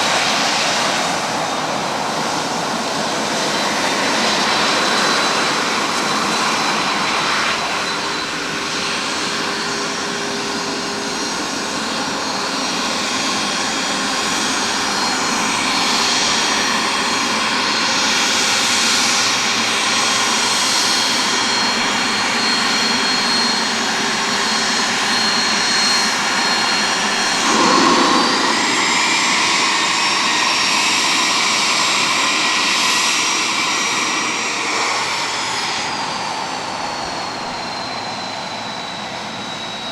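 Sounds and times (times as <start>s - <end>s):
jet engine whine: 0.0s - 39.9s
rushing noise: 27.3s - 31.1s.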